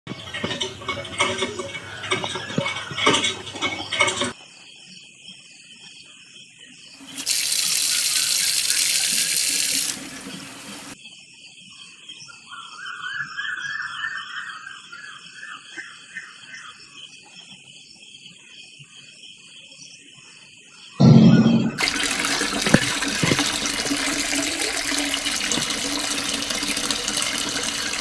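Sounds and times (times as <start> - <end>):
insects chirping: 0.1 - 21.0
water splashing: 7.0 - 11.0, 21.8 - 28.0
water spraying: 7.0 - 11.0, 21.8 - 28.0.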